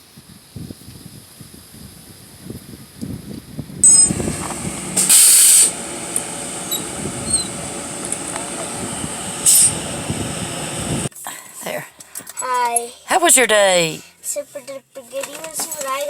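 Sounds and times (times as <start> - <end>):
air brakes hissing: 3.8 - 11.1
large vehicle running: 3.8 - 11.1.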